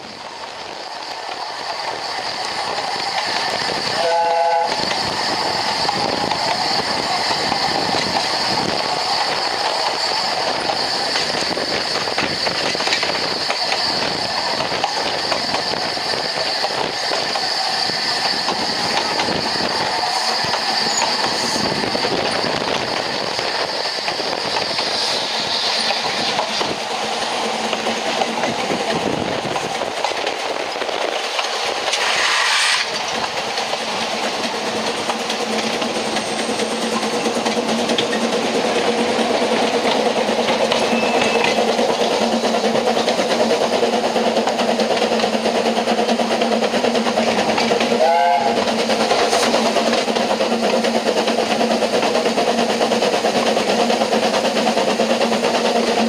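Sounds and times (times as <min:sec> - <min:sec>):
train wheels rumbling on rails: 0:00.0 - 0:56.0
steam train whistle: 0:03.9 - 0:04.9, 0:40.8 - 0:41.6, 0:47.9 - 0:48.8.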